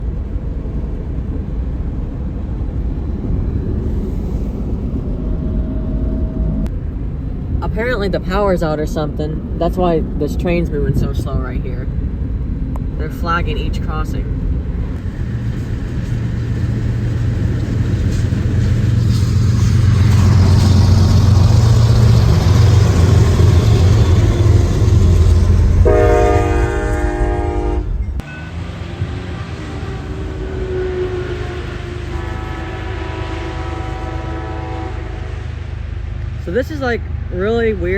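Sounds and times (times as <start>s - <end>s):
train rumbling slowly: 0.0s - 37.9s
train horn chord: 25.8s - 28.6s, 29.7s - 35.7s.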